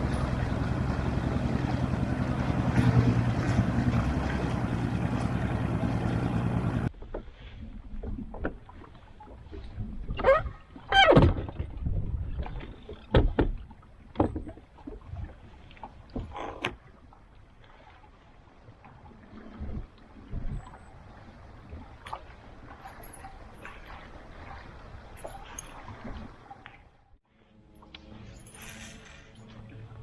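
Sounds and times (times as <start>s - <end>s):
boat motor humming: 0.0s - 6.9s
rushing wind and water: 0.0s - 27.0s.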